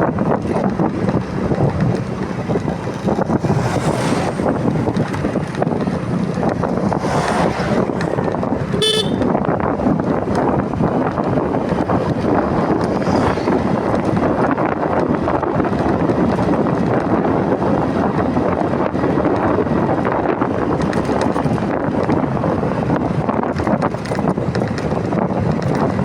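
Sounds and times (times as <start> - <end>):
motorcycle road and engine noise: 0.0 - 26.0
wind rushing over microphone: 0.0 - 26.0.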